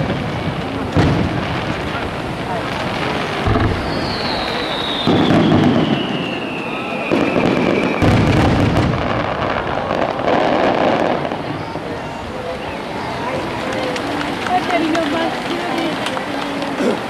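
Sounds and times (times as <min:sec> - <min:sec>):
firework crackling: 0:00.0 - 0:17.0
falling firework whistle: 0:03.0 - 0:14.0.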